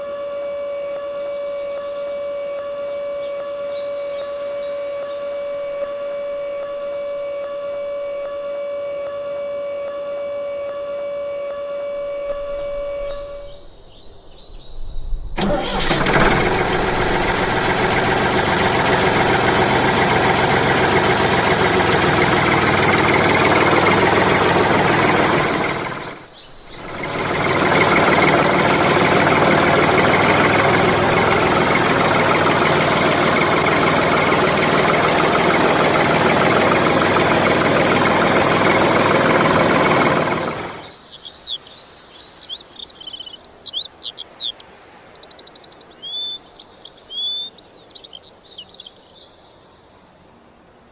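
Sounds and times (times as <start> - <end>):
birds chirping: 1.7 - 8.3, 11.3 - 49.8
motor running loudly: 15.8 - 41.0.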